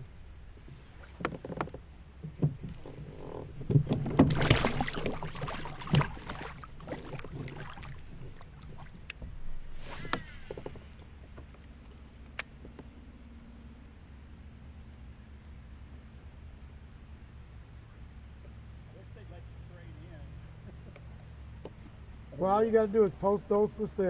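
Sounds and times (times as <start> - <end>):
knocks and clatter in boat: 0.6 - 9.4, 10.0 - 12.0.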